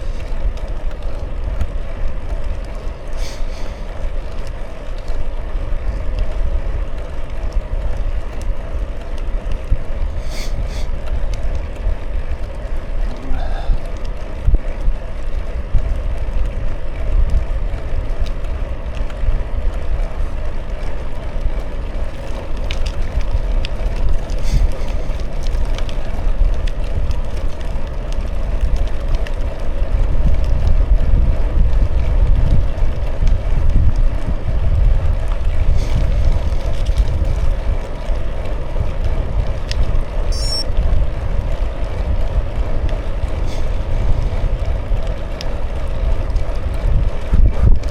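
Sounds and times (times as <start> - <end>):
bicycle tyres rolling: 0.0 - 47.9
wind buffeting microphone: 0.0 - 47.9
short high chirping: 40.3 - 40.7.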